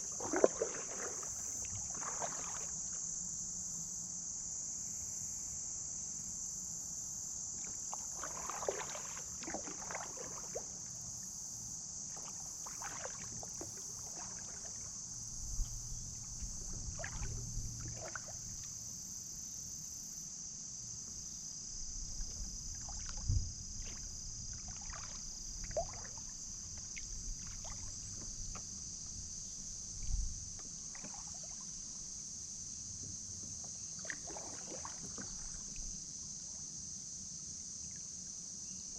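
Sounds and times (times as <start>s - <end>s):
paddle splashing in water: 0.0s - 3.1s, 7.6s - 11.2s, 12.0s - 18.8s, 22.0s - 32.2s, 33.3s - 36.0s
high insect drone: 0.0s - 38.9s.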